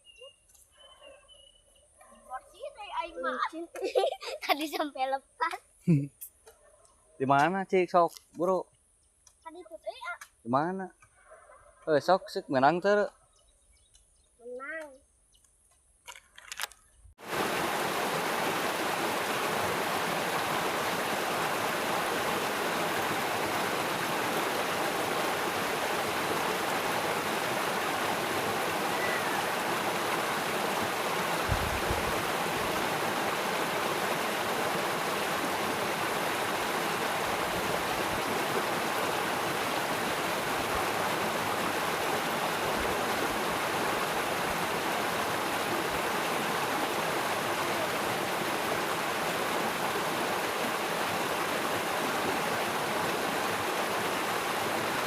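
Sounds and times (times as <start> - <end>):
flowing water rushing: 17.2 - 55.0.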